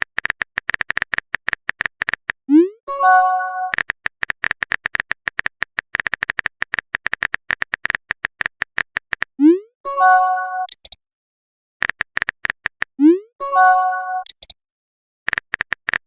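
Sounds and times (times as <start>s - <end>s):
bright alert chime: 9.9s - 10.7s, 13.4s - 14.3s.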